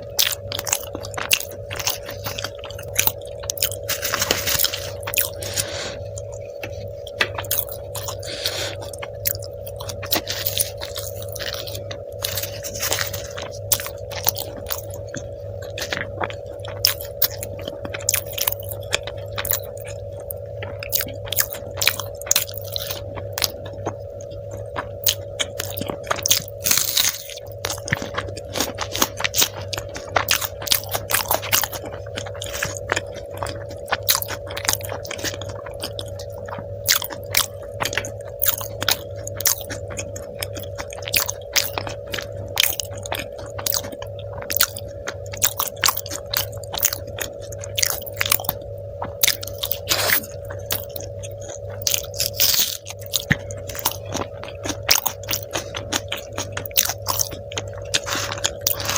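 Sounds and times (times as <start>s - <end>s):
background hum: 0.0s - 58.9s
person chewing food: 0.0s - 58.9s.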